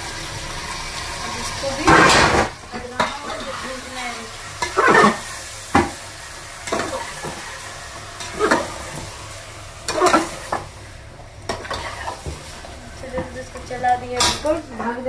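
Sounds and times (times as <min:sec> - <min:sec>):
meat and onions sizzling: 0:00.0 - 0:15.0
metal spatula scraping: 0:02.9 - 0:05.3, 0:08.2 - 0:09.0, 0:09.8 - 0:10.6, 0:11.5 - 0:12.7.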